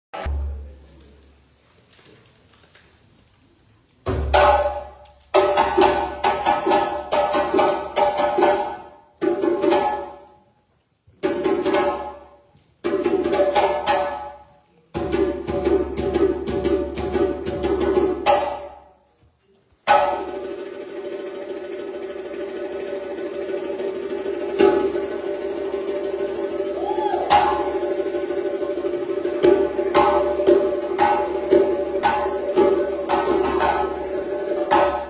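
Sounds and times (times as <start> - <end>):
djembe played by hand: 4.1 - 10.2, 11.2 - 12.2, 12.8 - 14.4, 15.0 - 18.7, 19.9 - 35.0.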